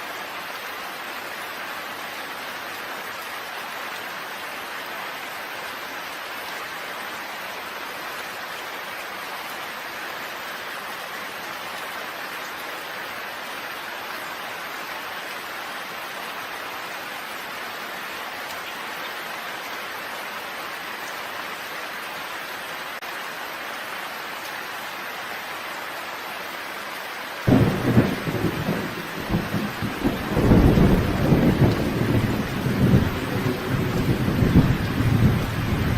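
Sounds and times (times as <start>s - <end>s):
steady rain falling: 0.0s - 35.9s
thunder clap rumbling: 27.5s - 35.9s.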